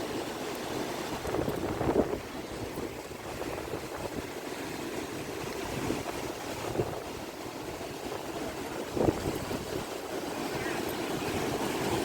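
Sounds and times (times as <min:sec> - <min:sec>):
sea surf rushing: 0:00.0 - 0:12.0
wind buffeting microphone: 0:00.0 - 0:12.0.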